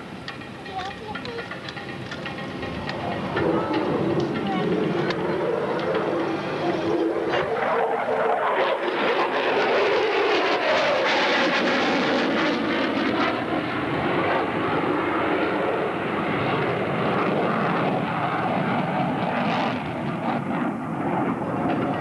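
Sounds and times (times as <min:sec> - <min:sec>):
jet passing low: 0:00.0 - 0:22.0.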